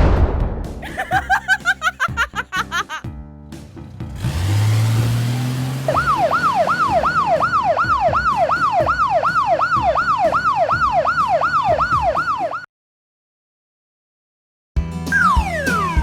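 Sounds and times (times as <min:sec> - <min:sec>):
siren yelping: 0:05.9 - 0:12.7.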